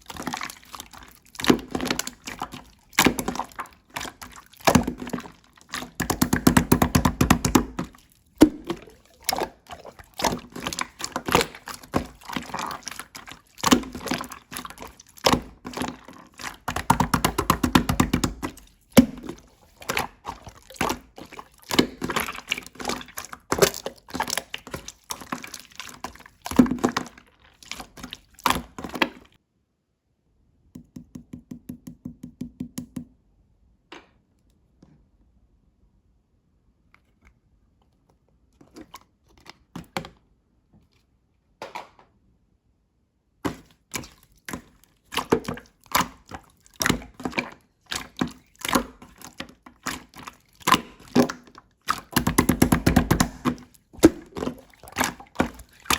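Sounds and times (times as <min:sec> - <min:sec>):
slime squished by hand: 0:00.0 - 0:29.4, 0:43.4 - 0:55.9.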